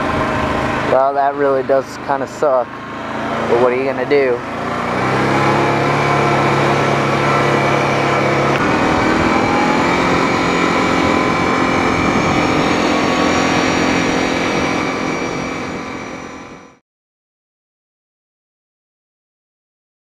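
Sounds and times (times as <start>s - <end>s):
vehicle engine running: 0.0s - 16.8s
rising tone: 2.6s - 16.8s.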